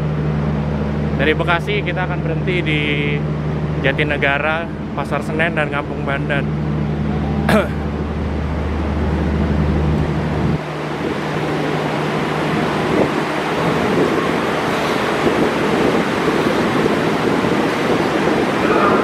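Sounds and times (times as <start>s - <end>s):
low engine-like hum: 0.0s - 19.0s
steady rushing noise: 0.0s - 19.0s.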